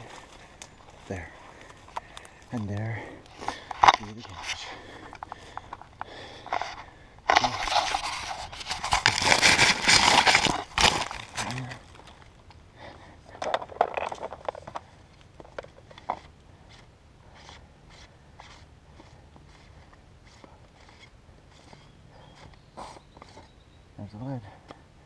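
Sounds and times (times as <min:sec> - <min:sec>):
dry brush crackling and rustling: 0:00.0 - 0:05.5, 0:06.5 - 0:12.5.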